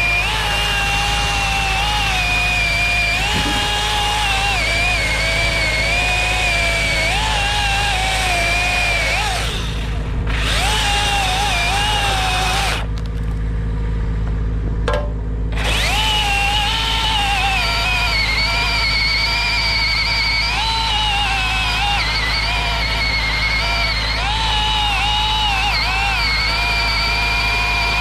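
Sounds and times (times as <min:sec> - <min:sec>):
chainsaw cutting under load: 0:00.0 - 0:13.1, 0:15.5 - 0:28.0.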